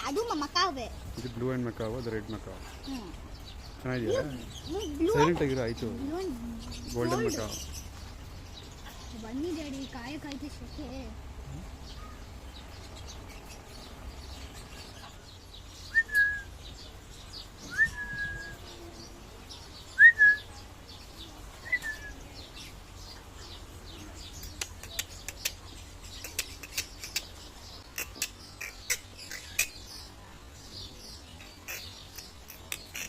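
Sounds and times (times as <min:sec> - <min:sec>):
sharp bird chirps: 0:14.2 - 0:18.7
bird whistles sliding up: 0:17.7 - 0:18.6.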